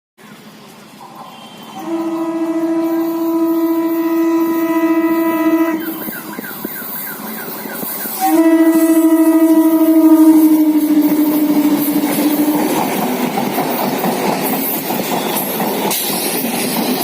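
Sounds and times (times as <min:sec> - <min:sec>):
train noise: 0:00.2 - 0:17.0
train horn blasts: 0:01.2 - 0:06.5, 0:08.1 - 0:13.0.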